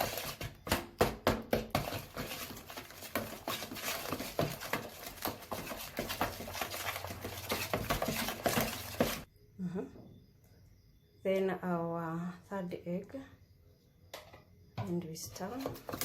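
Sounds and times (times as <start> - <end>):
wooden spoon stirring batter in bowl: 0.0 - 9.3, 15.2 - 16.0.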